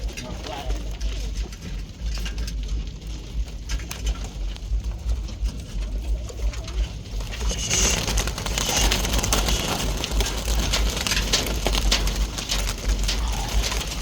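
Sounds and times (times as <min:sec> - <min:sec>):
pigeons cooing: 0:00.0 - 0:14.0
steady low rumble: 0:00.0 - 0:14.0.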